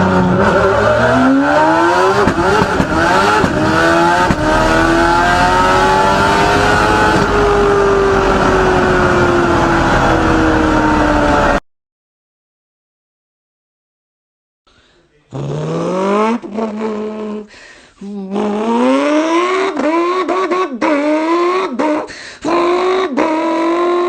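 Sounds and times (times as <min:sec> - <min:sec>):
person imitating car engine: 0:15.3 - 0:24.0.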